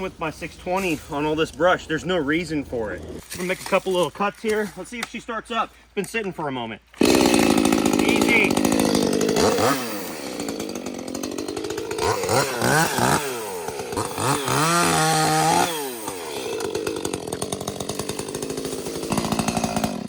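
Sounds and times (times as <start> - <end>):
chainsaw revving and idling: 0.0 - 3.8, 6.9 - 20.0.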